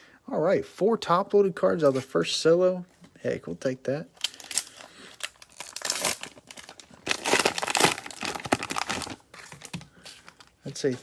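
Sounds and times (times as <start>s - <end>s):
cellophane wrapper crinkling: 4.2s - 10.7s.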